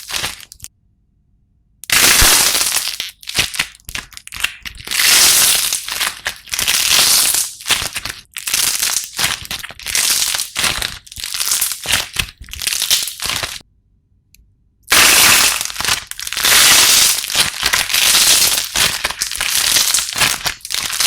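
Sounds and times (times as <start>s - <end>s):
slime crackling and crunching: 0.0s - 0.7s, 1.8s - 13.6s, 14.9s - 21.0s.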